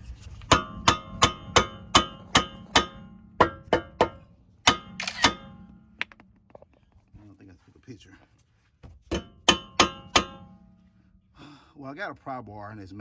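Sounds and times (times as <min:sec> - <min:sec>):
hammer clanging on metal: 0:00.5 - 0:05.7, 0:09.1 - 0:10.7.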